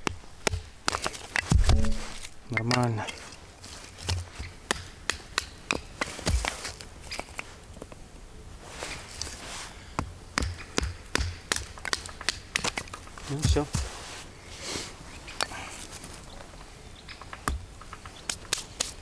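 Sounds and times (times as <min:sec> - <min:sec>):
knife scraping wood: 0:00.5 - 0:02.4, 0:12.6 - 0:16.0
knife knocking into wood: 0:01.4 - 0:02.3.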